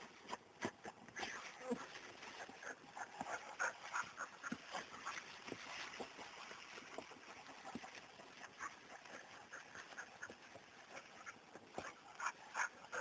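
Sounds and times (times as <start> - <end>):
dog rustling through undergrowth: 3.8 - 12.7.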